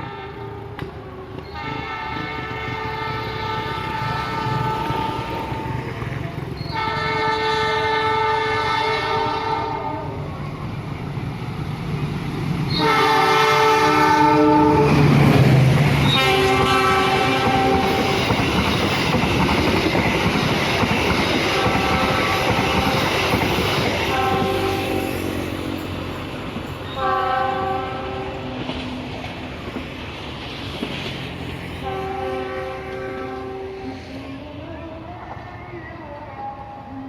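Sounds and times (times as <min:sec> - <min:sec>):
locomotive horn blasts: 0:00.0 - 0:10.2, 0:12.7 - 0:15.1, 0:16.0 - 0:18.4, 0:21.5 - 0:23.2, 0:24.0 - 0:25.3, 0:26.9 - 0:28.5, 0:31.8 - 0:34.0
train wheels clacking on rails: 0:03.8 - 0:07.3, 0:14.7 - 0:33.3.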